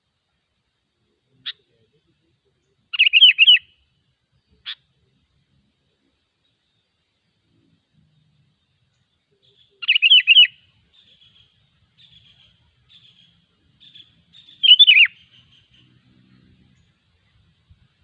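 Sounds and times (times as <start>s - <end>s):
bird whistled song phrases: 2.9s - 3.7s, 9.4s - 15.8s
faint short bird chirps: 9.4s - 16.9s.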